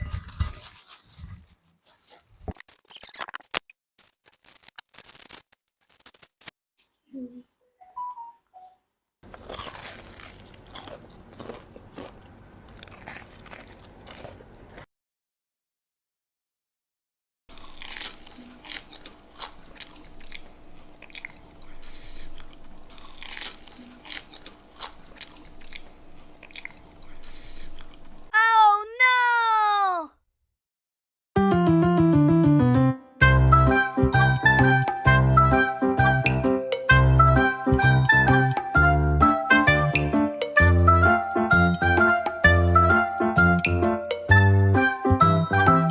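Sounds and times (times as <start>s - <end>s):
scratchy microphone crackles and clicks: 0.0s - 6.6s
crunching and chewing snacks: 0.1s - 6.4s, 9.2s - 14.9s, 17.5s - 28.2s.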